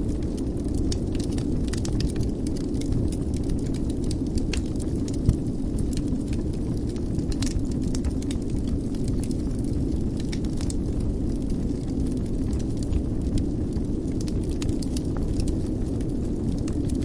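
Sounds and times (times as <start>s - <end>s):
fire pops and snaps: 0.0s - 17.0s
wood fire crackling: 0.0s - 17.0s.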